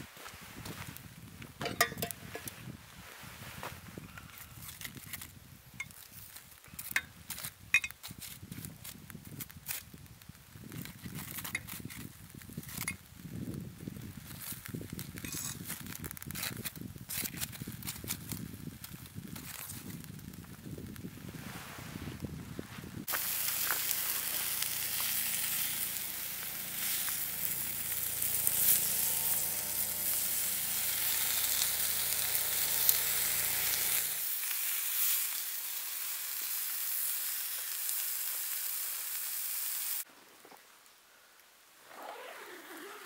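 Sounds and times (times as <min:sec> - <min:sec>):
sharp pops of frying: 0:01.6 - 0:02.5
chicken frying in a pan: 0:23.0 - 0:40.1.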